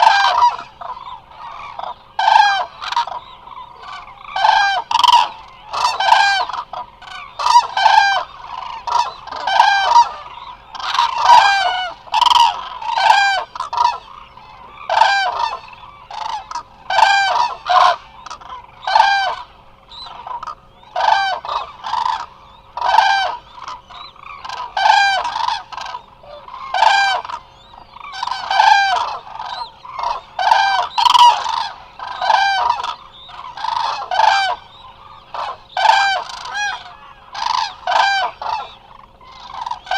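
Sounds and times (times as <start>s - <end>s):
cranes trumpeting: 0.0s - 39.9s.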